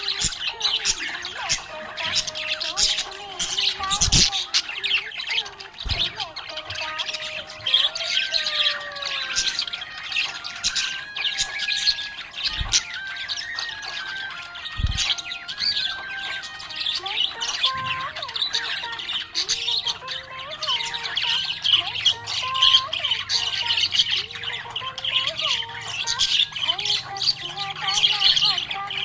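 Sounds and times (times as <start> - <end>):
budgerigars chirping: 0.0 - 29.0.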